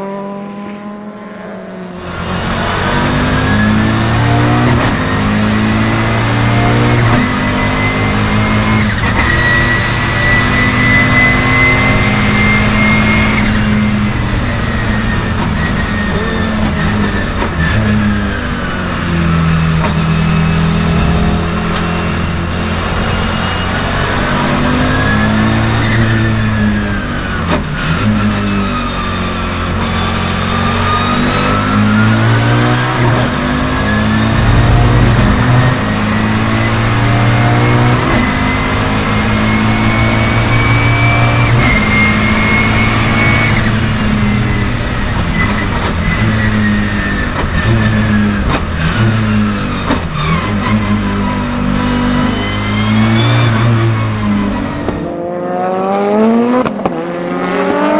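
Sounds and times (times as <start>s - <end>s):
race car engine accelerating: 0.0s - 57.9s
high turbo whine: 1.4s - 57.9s.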